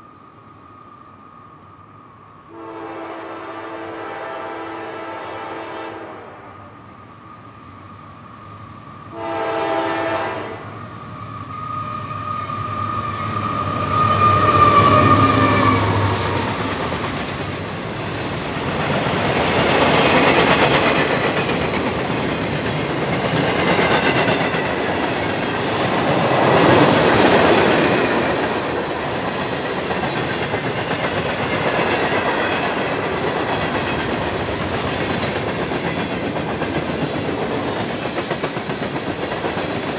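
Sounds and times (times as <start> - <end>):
train horn blasts: 2.5 - 6.7, 9.1 - 10.7
locomotives passing: 10.6 - 39.9.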